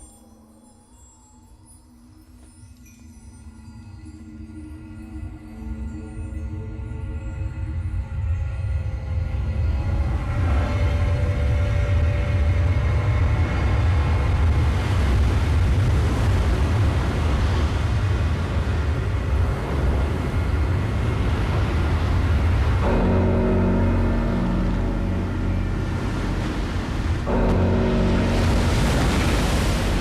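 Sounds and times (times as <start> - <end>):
deep rumble with noise: 7.4 - 30.0
faint held score tones: 22.8 - 30.0.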